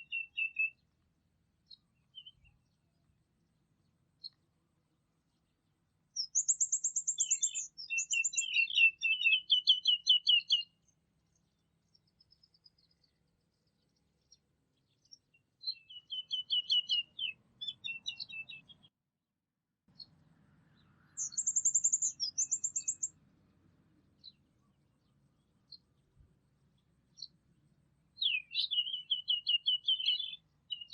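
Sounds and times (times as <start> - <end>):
bird chirps: 0.0 - 0.8, 1.6 - 3.1, 3.8 - 4.4, 5.3 - 18.9, 19.9 - 23.2, 24.1 - 27.4, 28.2 - 30.9
songbirds trilling: 0.0 - 0.9, 5.3 - 18.9, 19.9 - 27.4, 28.2 - 30.9.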